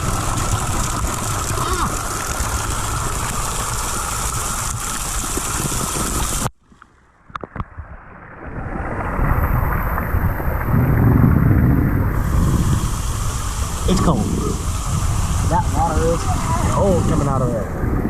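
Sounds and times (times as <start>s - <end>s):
rushing water spray: 0.0s - 6.5s, 9.1s - 18.0s
wind buffeting microphone: 8.5s - 18.0s.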